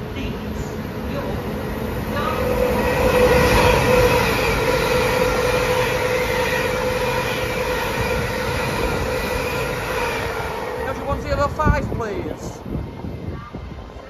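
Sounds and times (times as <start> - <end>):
steady train whine: 0.0 - 14.0
train wheel rumble: 0.0 - 14.0.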